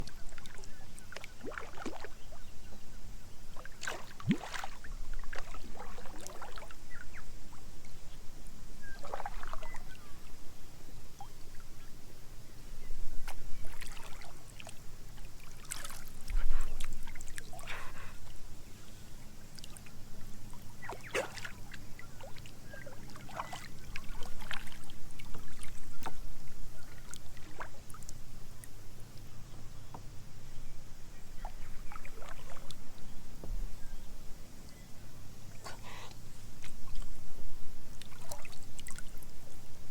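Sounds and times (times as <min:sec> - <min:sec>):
water splashing around kayak: 0:00.0 - 0:02.5, 0:03.5 - 0:07.6, 0:08.8 - 0:10.4, 0:13.2 - 0:29.1, 0:31.4 - 0:33.6, 0:37.8 - 0:39.9.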